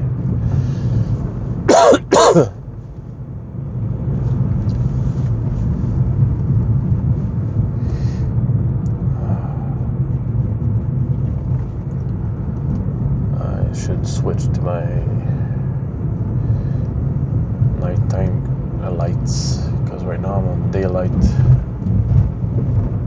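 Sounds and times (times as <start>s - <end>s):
car cabin rumble while driving: 0.0s - 23.0s
person coughing: 1.7s - 2.6s.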